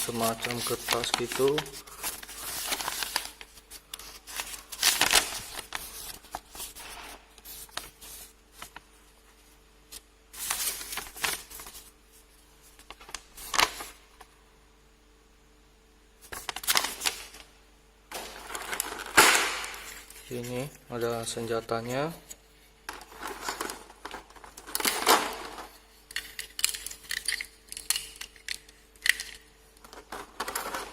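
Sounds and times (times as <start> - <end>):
packaging rustling and crinkling: 0.0 - 8.9, 9.9 - 12.0, 16.2 - 17.5, 18.1 - 20.6, 22.9 - 30.9.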